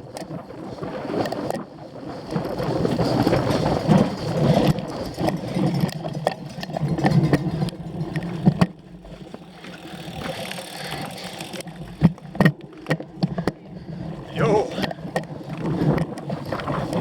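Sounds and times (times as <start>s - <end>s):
bike rattling over rough ground: 0.0s - 17.0s
bike clicks and knocks: 2.3s - 13.6s.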